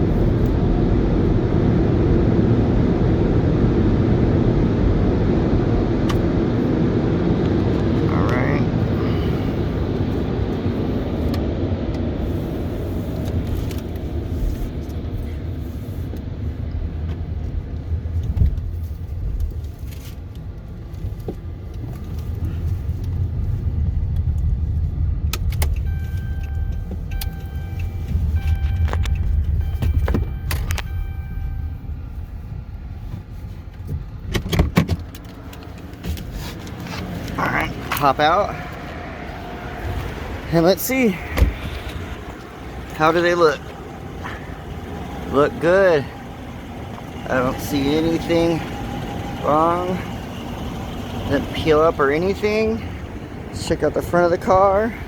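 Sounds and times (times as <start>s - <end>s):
car wash brushes and sprayers rumbling: 0.0s - 55.0s
short beeping tones: 25.8s - 32.2s.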